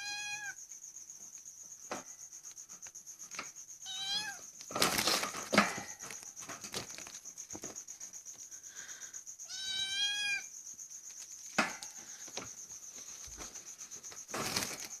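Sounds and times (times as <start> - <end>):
cat meowing: 0.0 - 0.6, 3.8 - 4.4, 9.5 - 10.5.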